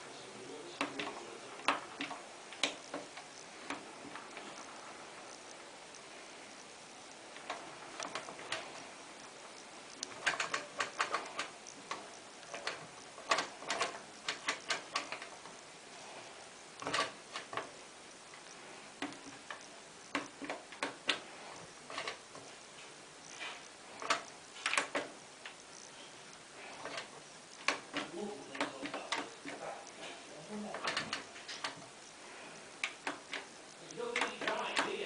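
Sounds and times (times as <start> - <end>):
washing machine dial clicking: 10.0 - 15.4, 32.8 - 35.0.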